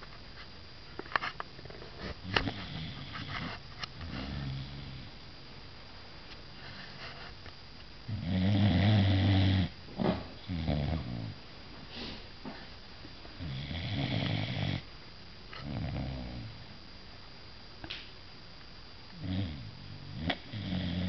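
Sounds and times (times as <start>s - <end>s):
dog snoring: 2.0s - 5.2s, 8.1s - 11.4s, 13.4s - 14.9s, 15.6s - 16.6s, 19.1s - 21.0s.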